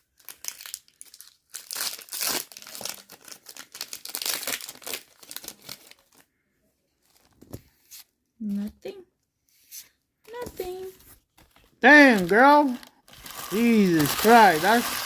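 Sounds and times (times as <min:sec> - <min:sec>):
foil wrapper crinkling and tearing: 0:00.0 - 0:06.3, 0:11.9 - 0:15.0.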